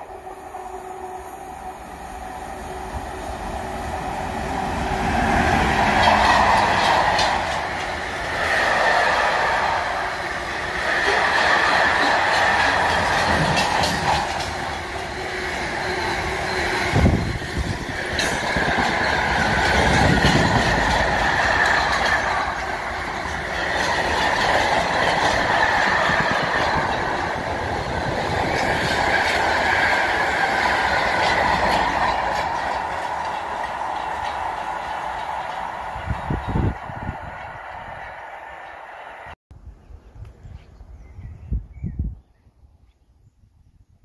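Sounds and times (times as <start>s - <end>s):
train wheels clattering: 4.4s - 38.8s
high wheel squeal: 4.5s - 34.6s.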